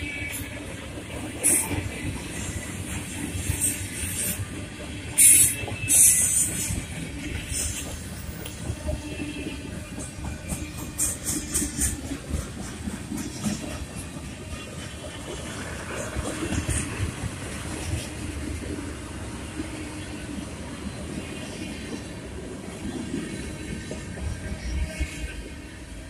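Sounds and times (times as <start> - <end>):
clicking at rail joints: 0.0 - 18.8
train wheels rumbling on rails: 0.0 - 26.0.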